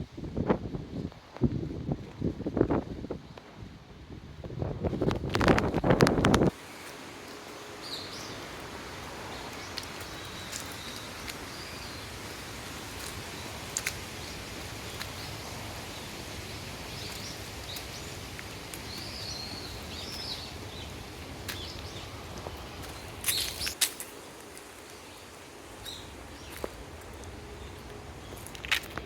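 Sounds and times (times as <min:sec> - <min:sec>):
outdoor background hiss: 0:00.0 - 0:29.0
birds chirping: 0:07.3 - 0:29.0.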